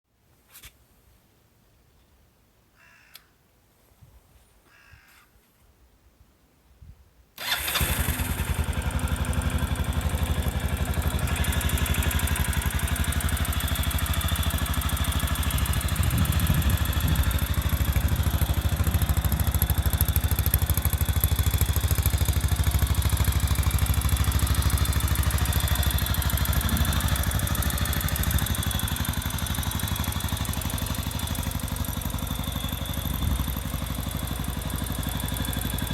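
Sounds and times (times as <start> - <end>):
motorcycle engine running: 7.4 - 35.9.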